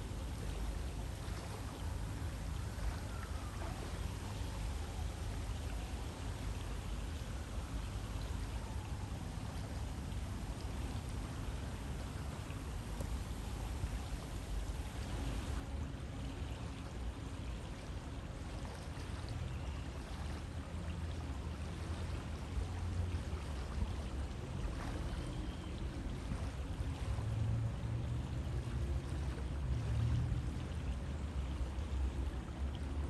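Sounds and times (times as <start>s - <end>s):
river water rushing: 0.0s - 19.4s.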